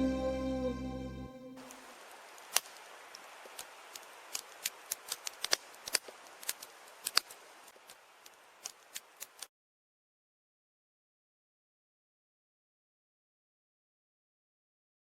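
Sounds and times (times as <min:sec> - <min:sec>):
campfire crackling: 0:01.6 - 0:09.5.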